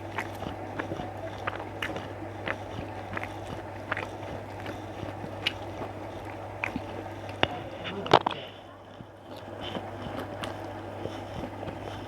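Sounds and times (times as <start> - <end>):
wet mouth clicks: 0.0 - 8.6
person chewing food: 0.0 - 12.0
steady low hum: 0.0 - 12.0.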